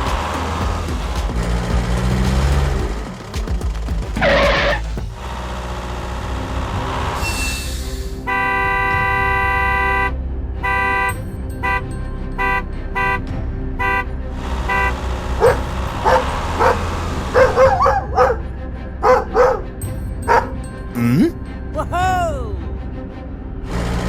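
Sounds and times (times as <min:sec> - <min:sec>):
vehicle horn blasts: 0:08.3 - 0:13.2, 0:13.8 - 0:14.1, 0:14.7 - 0:15.6
dog barking: 0:15.4 - 0:16.8, 0:17.4 - 0:18.4.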